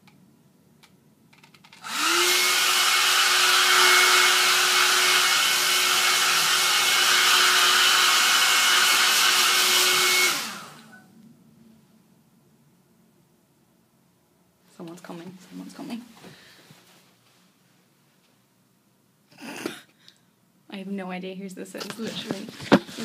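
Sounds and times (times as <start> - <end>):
hairdryer blowing: 1.8 - 11.0, 22.1 - 23.0.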